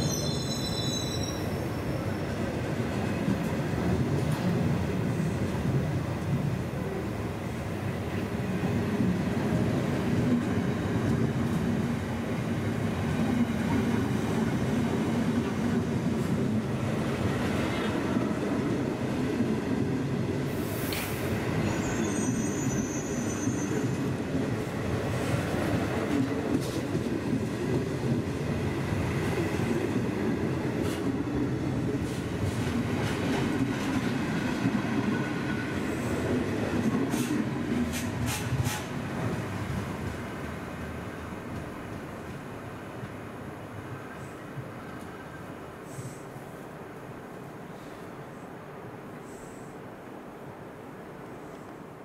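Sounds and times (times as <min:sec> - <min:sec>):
high-pitched wheel squeal: 0:00.0 - 0:01.6, 0:21.7 - 0:23.8
train wheels rumbling on rails: 0:00.0 - 0:46.3.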